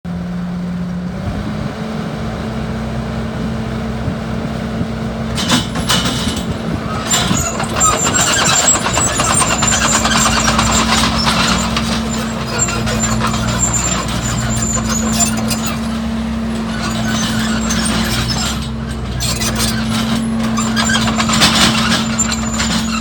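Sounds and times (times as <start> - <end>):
diesel engine running: 0.1 - 23.0
mulcher crackling and clattering: 5.3 - 23.0.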